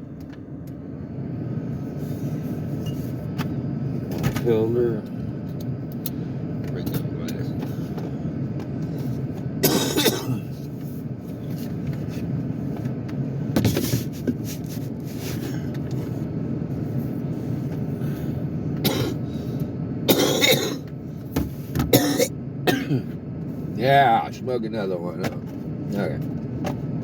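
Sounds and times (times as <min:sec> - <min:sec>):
man coughing: 0:09.6 - 0:10.6, 0:18.8 - 0:19.2, 0:20.1 - 0:20.9, 0:21.9 - 0:23.2.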